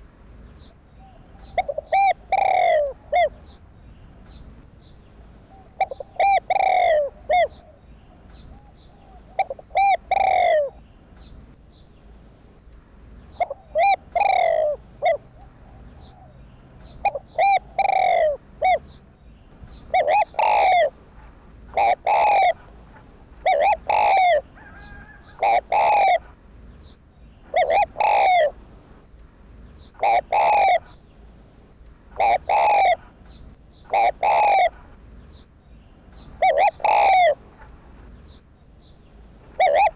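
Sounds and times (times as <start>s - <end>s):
dove cooing: 1.0s - 3.6s, 5.5s - 10.8s, 13.3s - 19.0s, 19.7s - 26.4s, 27.4s - 28.6s, 30.0s - 31.0s, 32.1s - 33.2s, 33.9s - 35.0s, 36.2s - 37.5s, 39.4s - 39.9s.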